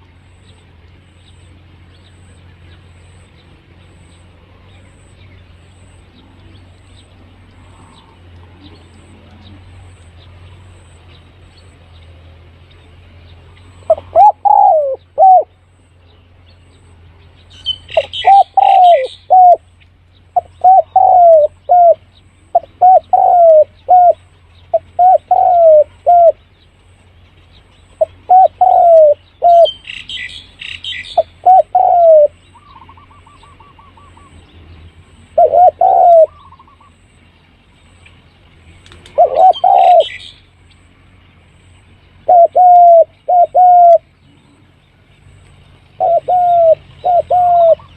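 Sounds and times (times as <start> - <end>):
small birds twittering: 0.0 - 47.9
dove cooing: 13.8 - 15.5, 17.9 - 19.6, 20.3 - 26.4, 28.0 - 29.9, 31.0 - 34.4, 35.2 - 37.0, 38.9 - 40.3, 42.2 - 44.0, 46.0 - 47.9.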